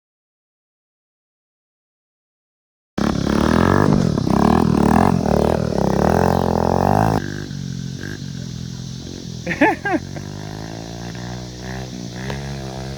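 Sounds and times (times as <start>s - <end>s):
dirt bike engine revving: 3.0s - 12.9s.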